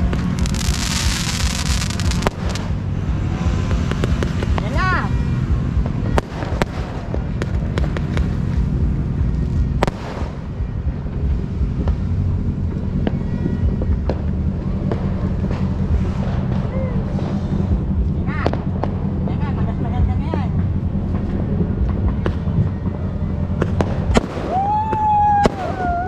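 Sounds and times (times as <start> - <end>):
sharp firecracker bangs: 0.0 - 4.8, 5.8 - 10.9, 23.5 - 26.0
low rumble of fireworks: 0.0 - 26.0.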